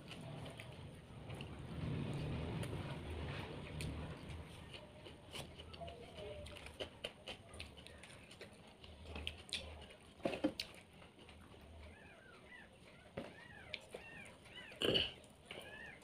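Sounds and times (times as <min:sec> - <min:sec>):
chewing and lip smacks: 0:00.0 - 0:16.0.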